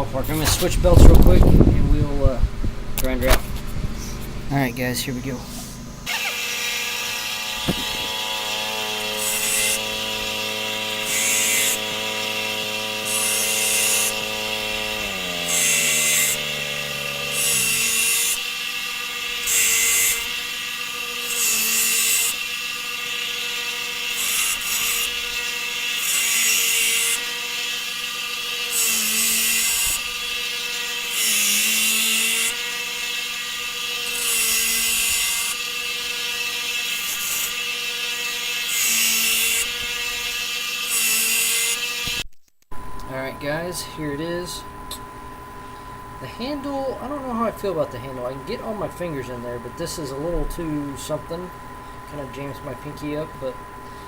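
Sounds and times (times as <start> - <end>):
belt grinder motor humming: 3.6 - 42.2, 42.8 - 54.0
blade grinding hiss on belt: 4.0 - 42.2.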